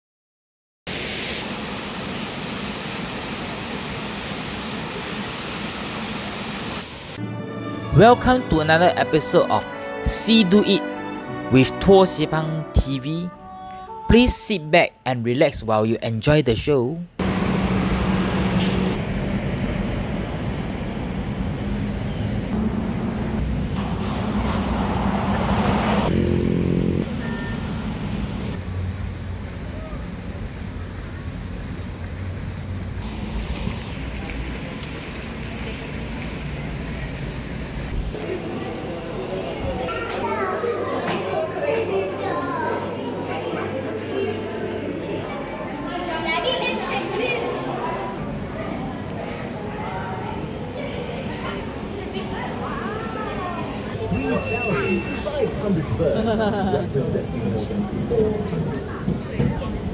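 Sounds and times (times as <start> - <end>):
vehicle engine running: 17.2 - 20.2.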